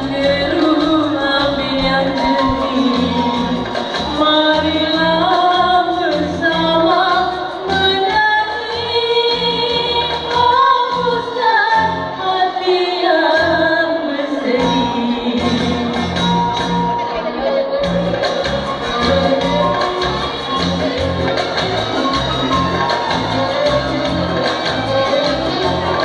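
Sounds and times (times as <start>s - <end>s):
music with bass beat: 0.0s - 8.0s, 14.6s - 26.0s
woman singing: 0.0s - 16.4s.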